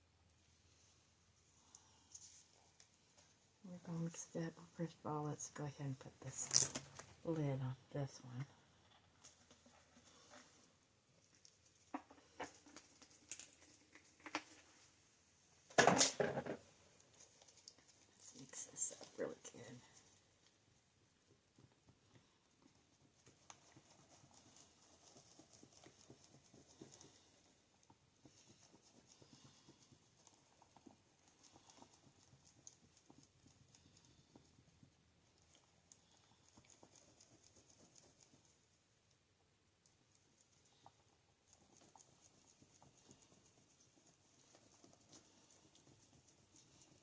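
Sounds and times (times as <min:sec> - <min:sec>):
stir stick scraping a mixing cup: 0:09.0 - 0:10.8.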